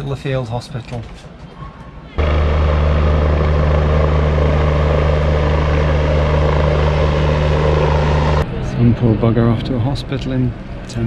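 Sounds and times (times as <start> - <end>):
helicopter engine and rotor: 2.2 - 8.7.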